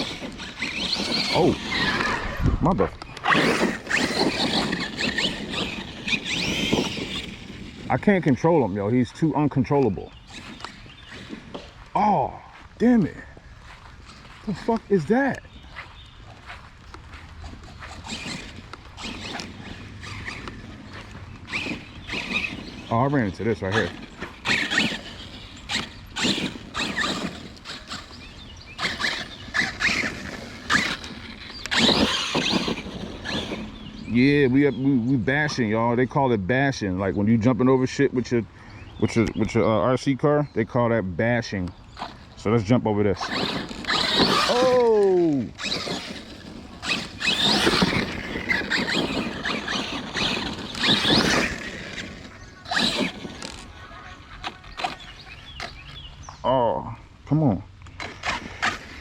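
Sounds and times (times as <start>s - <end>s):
tyres scrabbling over wet ground: 0.0s - 8.3s, 16.8s - 33.9s, 43.1s - 56.0s
electric motor whining: 0.0s - 12.4s, 13.0s - 34.7s, 41.8s - 42.5s, 43.1s - 56.1s, 57.8s - 59.0s.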